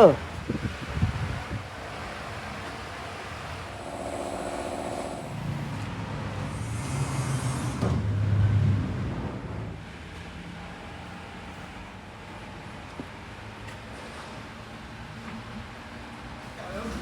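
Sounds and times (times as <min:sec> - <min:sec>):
vehicle engine running: 0:00.5 - 0:07.6.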